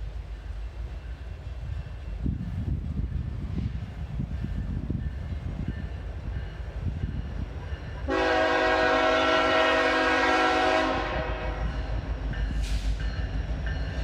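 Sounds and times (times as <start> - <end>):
diesel locomotive rumbling: 0.0 - 14.0
train air horn: 8.1 - 11.9.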